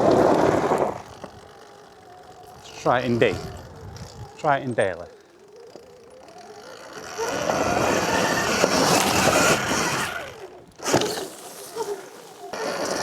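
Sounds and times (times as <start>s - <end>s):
electric motor whine: 0.0s - 13.0s.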